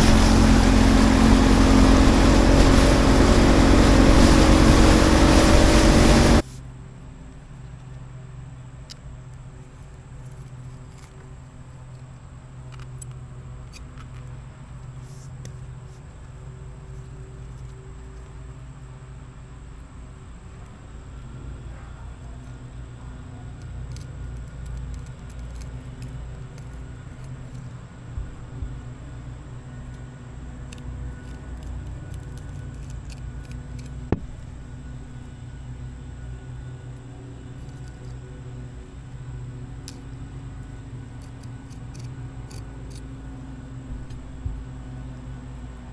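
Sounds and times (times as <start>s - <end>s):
boat engine humming: 0.0s - 7.0s, 20.2s - 45.9s.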